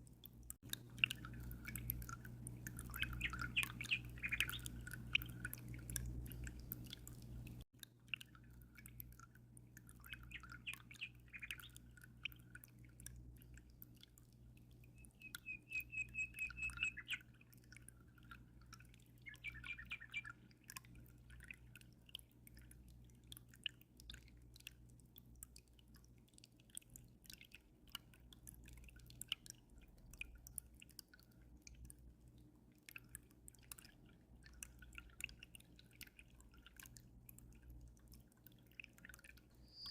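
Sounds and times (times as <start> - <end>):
aquarium water dripping: 0.0 - 39.9
low steady hum: 0.0 - 39.9
small birds chirping: 2.8 - 5.9, 10.0 - 12.5, 14.8 - 17.4, 19.1 - 20.6, 39.5 - 39.9.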